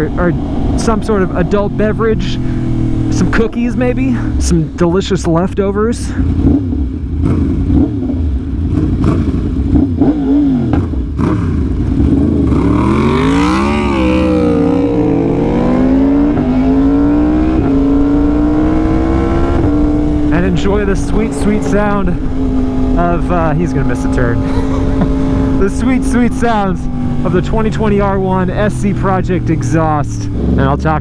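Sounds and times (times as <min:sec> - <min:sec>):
motorcycle engine revving: 0:00.0 - 0:31.0
exhaust cracks: 0:17.6 - 0:31.0.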